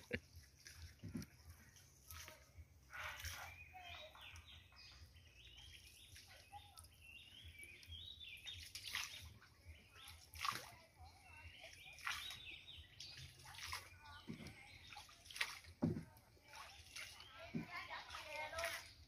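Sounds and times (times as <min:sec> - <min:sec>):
short sharp splashes: 0:00.0 - 0:04.2, 0:08.4 - 0:10.9, 0:11.5 - 0:19.0
birds chirping and warbling: 0:00.0 - 0:19.0.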